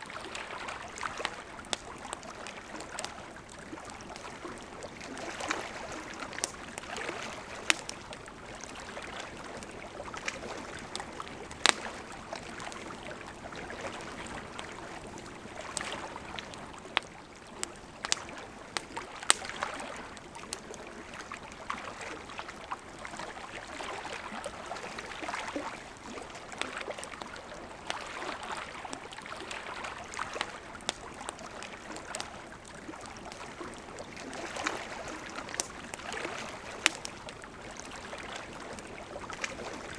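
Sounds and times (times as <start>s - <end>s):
wood fire crackling and popping: 0.2s - 21.0s, 28.9s - 39.9s.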